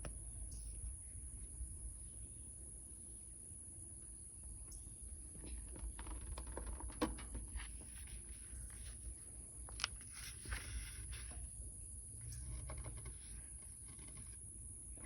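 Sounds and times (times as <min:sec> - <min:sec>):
paper pages rustling: 0:07.6 - 0:11.4.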